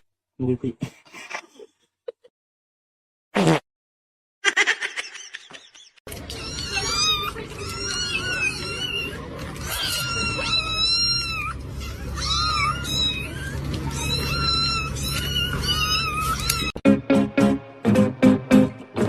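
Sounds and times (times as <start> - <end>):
cat meowing: 6.3 - 16.8.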